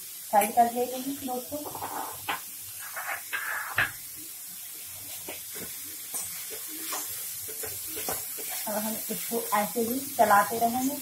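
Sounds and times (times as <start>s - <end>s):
carrots frying with soft hiss: 0.0s - 11.0s
steel spoon scraping a pan: 6.1s - 9.2s.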